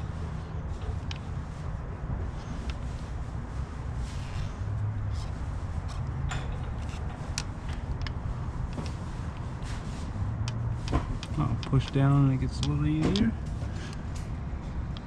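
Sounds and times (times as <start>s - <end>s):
steady low hum: 0.0s - 15.0s
hand tools clicking and knocking: 10.4s - 13.4s.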